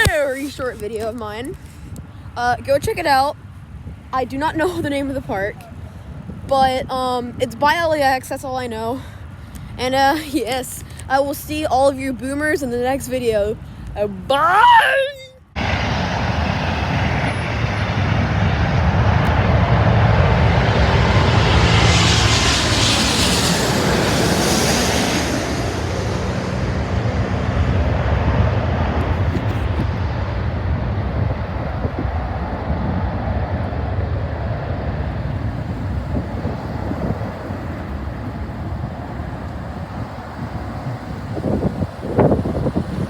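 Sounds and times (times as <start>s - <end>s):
jet airliner roar overhead: 15.5s - 43.0s.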